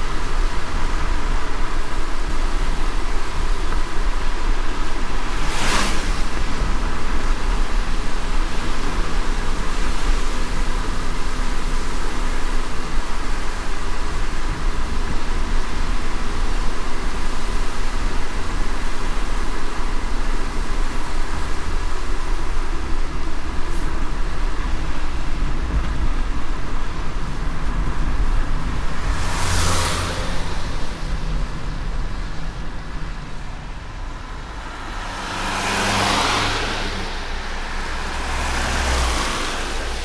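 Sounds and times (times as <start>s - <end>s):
car road rumble: 0.0s - 40.0s
light rain hiss: 0.0s - 40.0s
tyres hissing on wet pavement: 0.0s - 40.0s.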